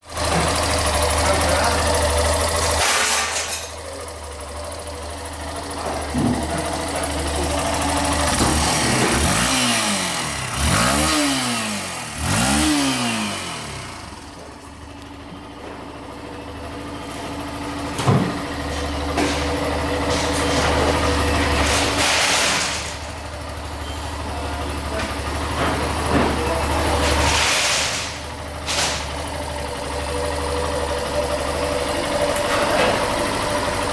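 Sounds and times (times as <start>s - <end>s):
motorcycle engine idling: 0.0s - 33.9s
engine throttle revs: 5.8s - 14.6s.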